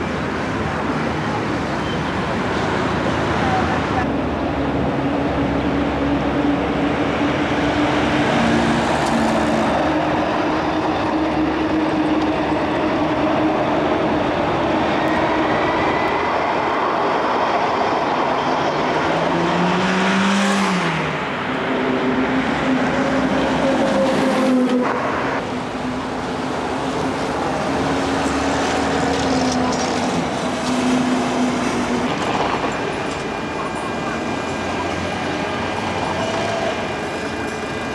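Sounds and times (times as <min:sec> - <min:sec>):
vehicle rolling noise: 0:21.2 - 0:37.9.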